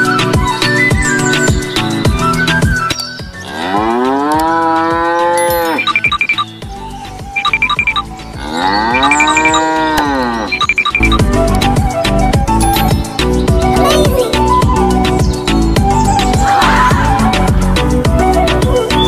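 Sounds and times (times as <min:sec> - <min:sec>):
cow mooing: 0:03.4 - 0:05.8, 0:08.4 - 0:10.6.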